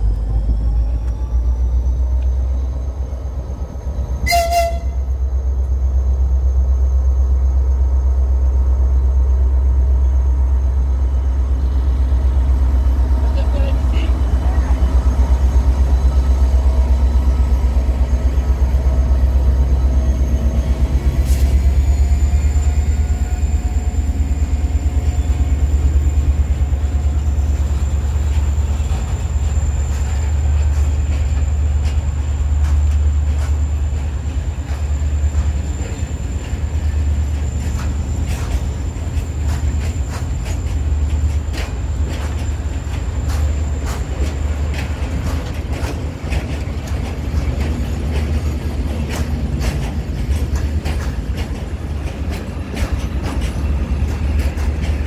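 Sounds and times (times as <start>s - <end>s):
diesel locomotive engine rumble: 0.0s - 55.0s
wagon wheels clicking on rail joints: 28.2s - 55.0s.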